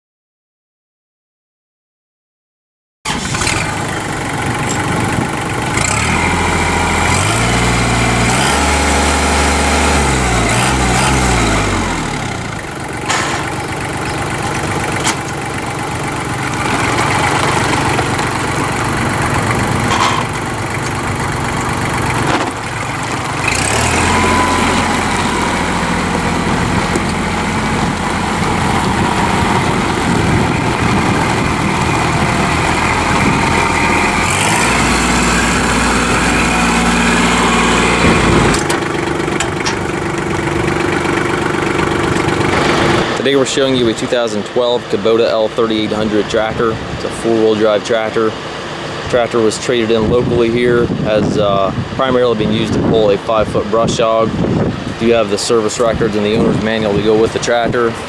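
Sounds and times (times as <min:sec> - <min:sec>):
tractor diesel engine running: 0:03.1 - 0:58.0
sharp clunks: 0:13.0 - 0:13.6, 0:19.8 - 0:21.0.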